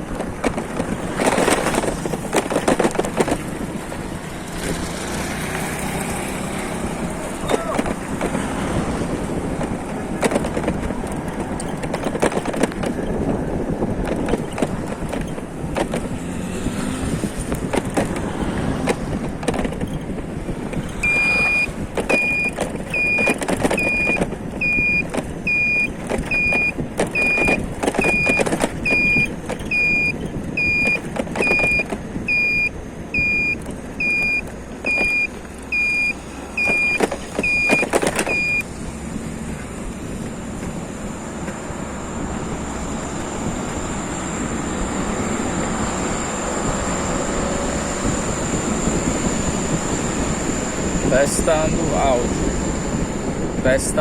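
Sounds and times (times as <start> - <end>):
knocks and rattles: 0.0 - 6.0, 6.7 - 32.5, 33.2 - 38.6
vehicle road noise: 0.0 - 54.0
high electronic beep: 21.0 - 38.6.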